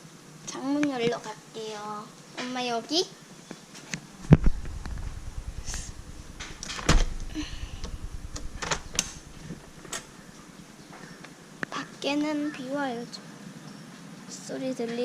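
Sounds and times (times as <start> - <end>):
low rumble of handling: 4.2 - 10.8.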